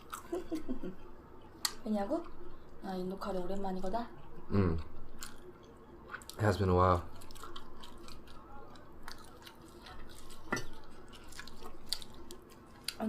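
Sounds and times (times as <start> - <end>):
chewing food: 0.0 - 0.6, 4.2 - 13.0.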